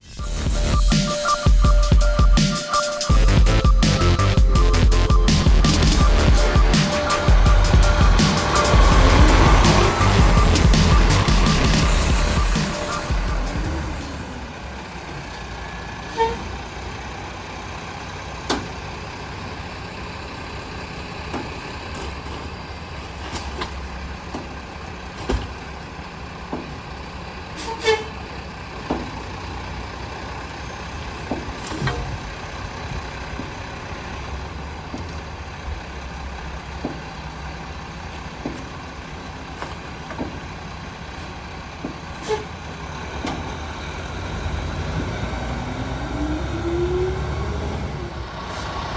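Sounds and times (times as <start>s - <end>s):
garbage truck diesel engine running: 0.0s - 48.9s
sharp knocks and clanks: 23.3s - 25.7s, 26.4s - 26.9s, 28.8s - 29.3s, 31.2s - 32.3s, 34.8s - 35.3s, 36.7s - 37.2s, 38.4s - 38.8s, 39.6s - 40.5s.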